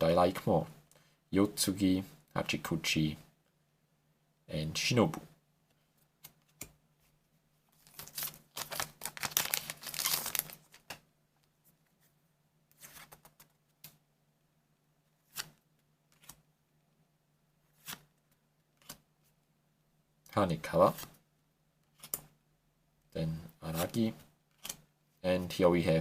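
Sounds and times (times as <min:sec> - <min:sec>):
cards being handled: 0:06.1 - 0:11.0, 0:12.7 - 0:14.0, 0:15.2 - 0:16.4, 0:17.7 - 0:18.2, 0:21.9 - 0:22.3, 0:23.7 - 0:24.8
foil wrapper tearing and crinkling: 0:07.8 - 0:10.8.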